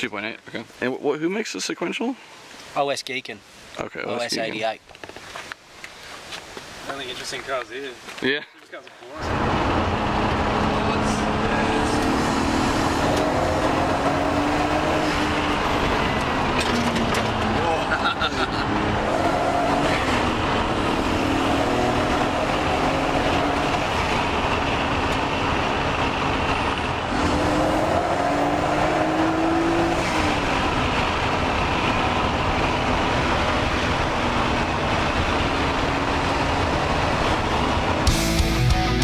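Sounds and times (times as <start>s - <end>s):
road noise: 3.4s - 39.0s
car engine accelerating: 9.2s - 39.0s.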